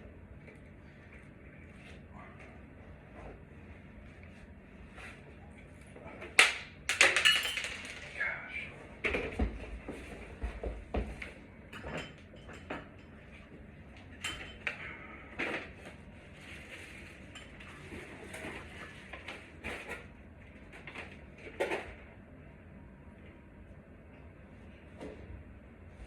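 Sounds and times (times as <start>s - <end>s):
metal parts and tools clinking: 6.9s - 8.1s.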